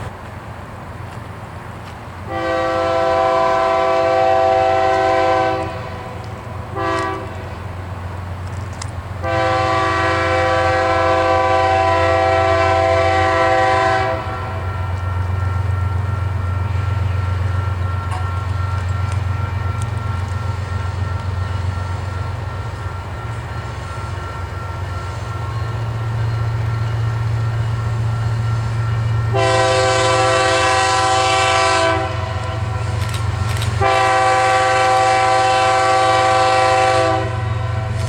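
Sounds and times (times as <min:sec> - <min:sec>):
diesel locomotive rumble: 0:00.0 - 0:38.0
locomotive air horn blasts: 0:02.3 - 0:07.6, 0:09.2 - 0:22.4, 0:26.2 - 0:38.0.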